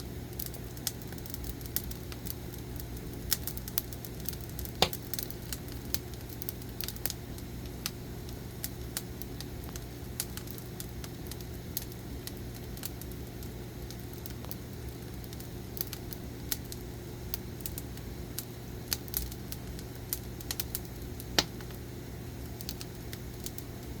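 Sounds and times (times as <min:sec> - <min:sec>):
steady low hum: 0:00.0 - 0:24.0
firewood crackling and popping: 0:00.1 - 0:24.0.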